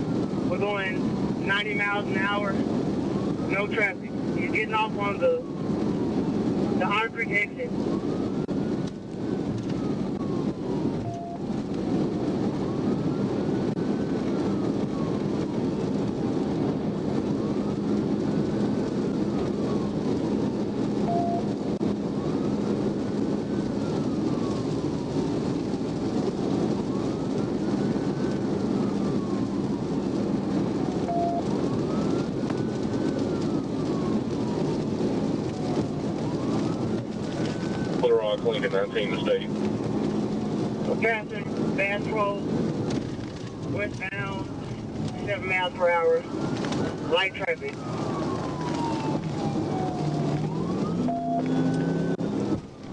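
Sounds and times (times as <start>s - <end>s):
police siren wailing: 0.0s - 52.9s
road and engine noise: 0.0s - 52.9s
short beep: 21.1s - 21.5s.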